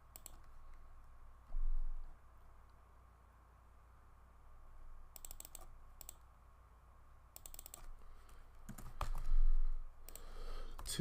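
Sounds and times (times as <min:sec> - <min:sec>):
keyboard typing: 0:00.0 - 0:00.6, 0:05.1 - 0:06.2, 0:07.3 - 0:09.4.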